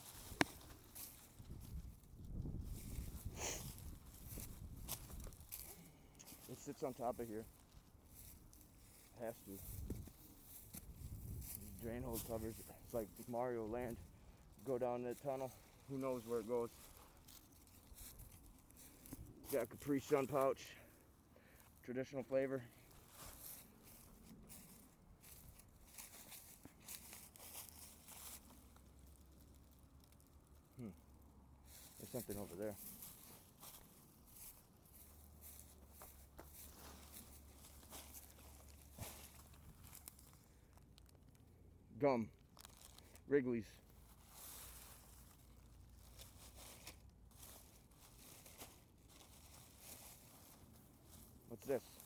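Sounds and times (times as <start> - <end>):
litter crinkling and rustling: 31.7 - 41.5, 42.4 - 52.0.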